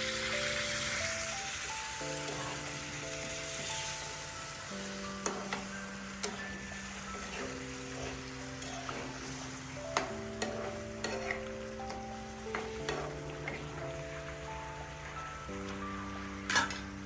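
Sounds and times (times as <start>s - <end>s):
meat sizzling in a pan: 0.0s - 17.0s
soft background music: 0.0s - 17.0s
utensil clicking against pan: 9.9s - 13.6s.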